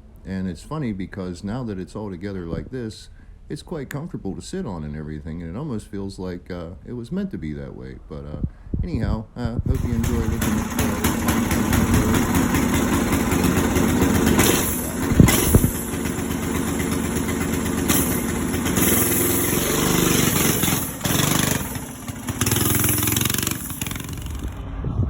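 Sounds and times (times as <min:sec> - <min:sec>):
small engine running: 0:09.8 - 0:24.6.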